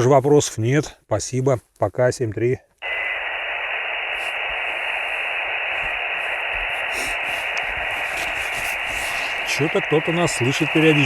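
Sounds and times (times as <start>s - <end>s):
radio receiver hiss: 2.8s - 11.0s.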